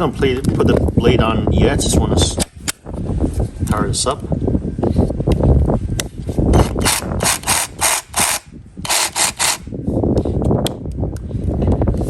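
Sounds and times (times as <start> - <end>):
reciprocating saw bursts: 6.6 - 9.7.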